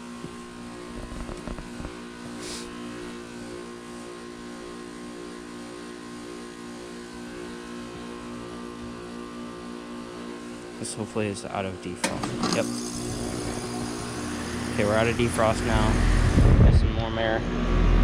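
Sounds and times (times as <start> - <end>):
heat pump compressor humming: 0.0 - 18.0
short hiss: 2.4 - 2.7
low thumps: 16.2 - 17.0.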